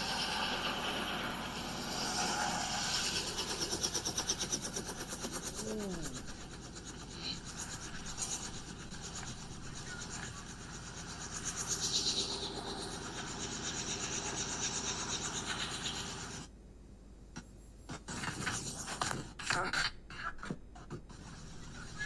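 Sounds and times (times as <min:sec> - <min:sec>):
helicopter rotor and engine running: 0:00.0 - 0:16.5, 0:21.1 - 0:22.0.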